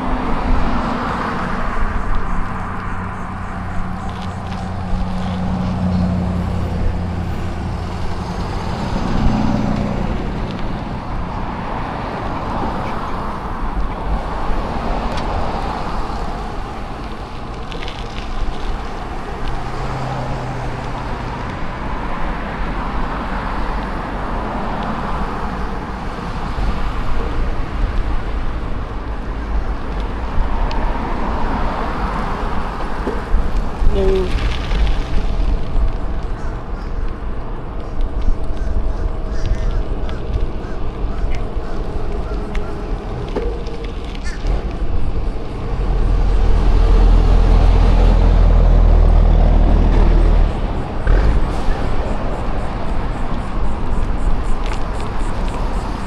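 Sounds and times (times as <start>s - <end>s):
engine hum: 0.0s - 56.0s
vehicles passing: 0.0s - 56.0s
steady low rumble: 20.5s - 56.0s.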